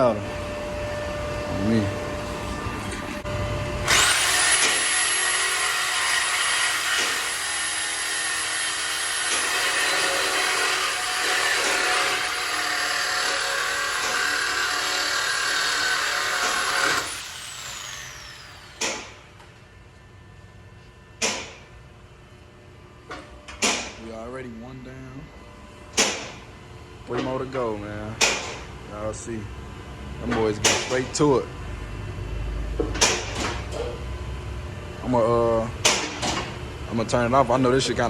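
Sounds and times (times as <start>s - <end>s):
cut-off tool whining through metal: 3.8s - 19.5s.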